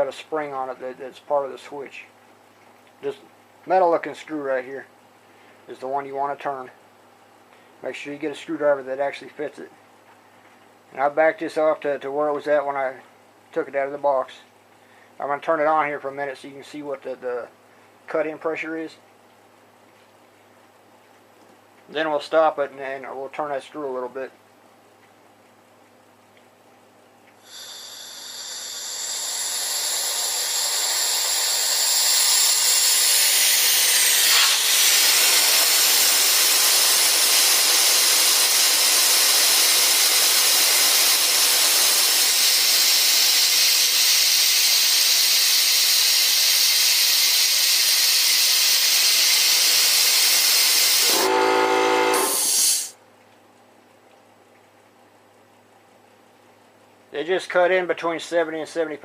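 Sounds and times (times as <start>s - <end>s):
compressed air hissing: 27.4s - 53.0s
short pitched drone: 51.0s - 52.9s.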